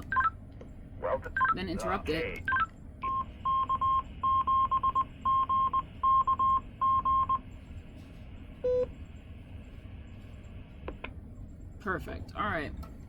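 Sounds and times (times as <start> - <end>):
steady background hum: 0.0 - 13.0
morse code beeps: 1.4 - 1.6, 2.5 - 7.4.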